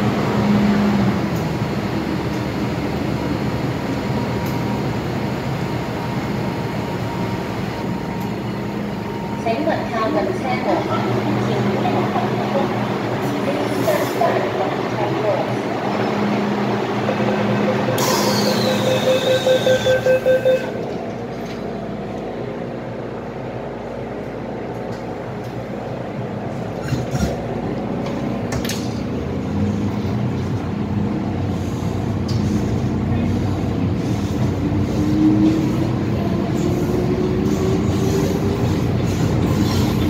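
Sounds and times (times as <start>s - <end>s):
door-closing warning beeps: 17.6s - 20.8s
train running rumble: 20.8s - 40.0s.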